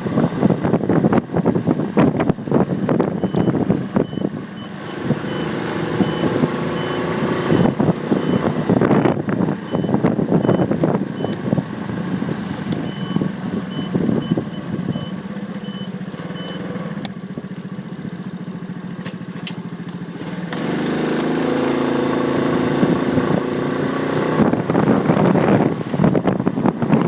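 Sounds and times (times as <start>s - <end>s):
motorcycle engine: 0.0s - 27.0s
wind on microphone: 7.5s - 11.8s, 24.3s - 27.0s.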